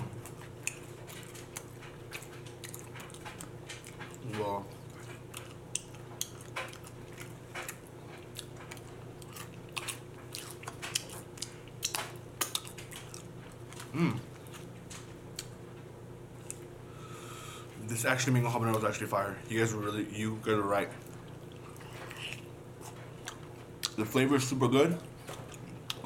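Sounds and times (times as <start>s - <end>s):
steady low hum: 0.0s - 26.0s
chewing with wet mouth clicks: 0.1s - 15.6s, 16.4s - 16.7s, 20.9s - 24.0s, 25.0s - 26.0s
person humming: 13.9s - 14.3s.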